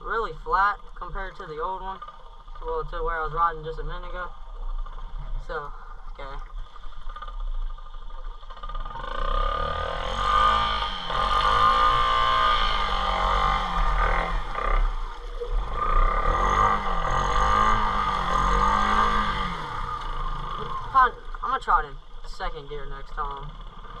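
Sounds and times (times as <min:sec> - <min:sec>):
small motorbike engine revving: 0:08.5 - 0:21.3.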